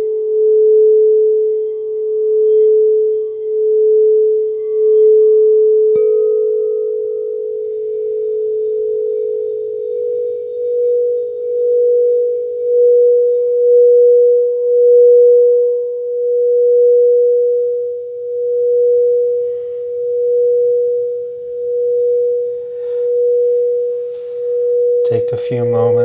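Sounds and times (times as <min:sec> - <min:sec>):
singing bowl steady tone: 0:00.0 - 0:26.0.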